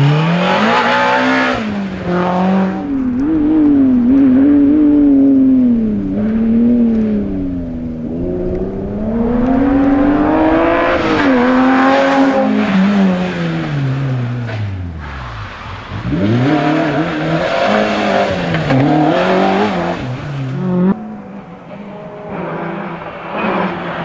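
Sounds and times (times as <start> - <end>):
rally car engine running hard: 0.0 - 15.3.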